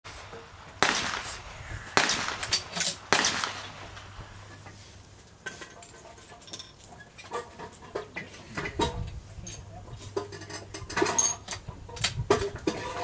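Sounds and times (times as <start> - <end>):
gunshots with echo: 0.8 - 4.2.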